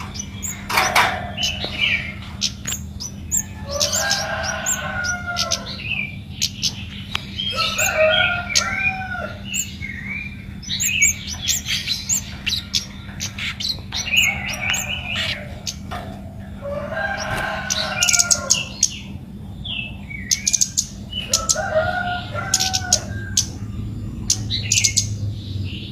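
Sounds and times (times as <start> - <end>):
songbird chattering song: 0.0 - 25.9
steady low hum: 0.0 - 25.9.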